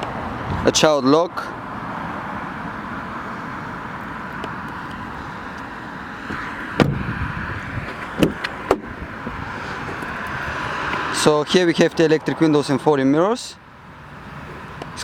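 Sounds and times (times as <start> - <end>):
outdoor traffic noise: 0.0 - 15.0
car door shutting with thud: 6.3 - 8.9.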